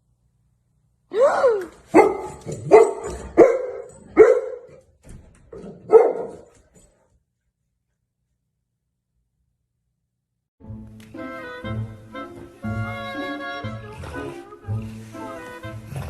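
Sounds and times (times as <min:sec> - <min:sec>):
dog barking: 0:01.9 - 0:04.8, 0:05.6 - 0:06.5.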